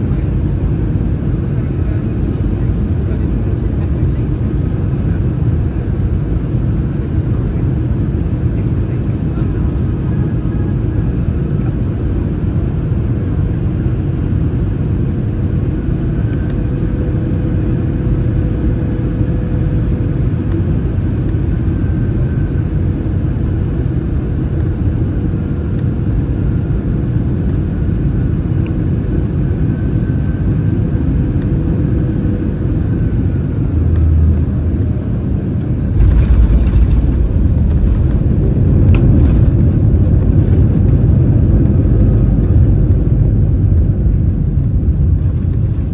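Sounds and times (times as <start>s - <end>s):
airplane cabin engine rumble: 0.0s - 45.9s
faint whine: 26.8s - 45.9s
rattling in cabin: 34.3s - 43.1s
low thump: 36.0s - 40.2s.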